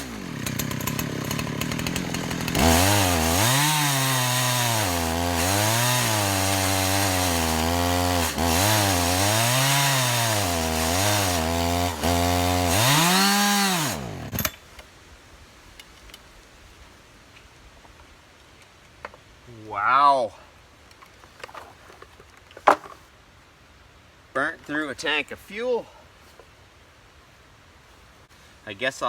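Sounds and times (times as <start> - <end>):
chainsaw ripping a log: 0.0 - 14.6.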